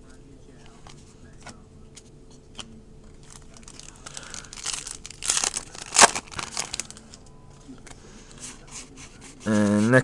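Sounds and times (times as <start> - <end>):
card pack wrapper crinkling: 3.1 - 7.2
wrapper ripping: 3.2 - 7.1.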